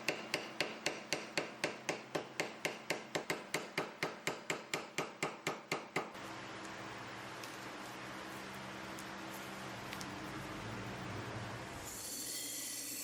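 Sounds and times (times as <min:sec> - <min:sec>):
hammer tapping on metal: 0:00.0 - 0:06.2.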